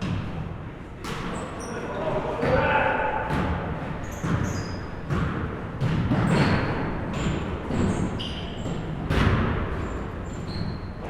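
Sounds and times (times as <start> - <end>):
basketball bouncing on gym floor: 0.0 - 1.4, 2.4 - 11.0
murmur of voices: 0.6 - 4.0.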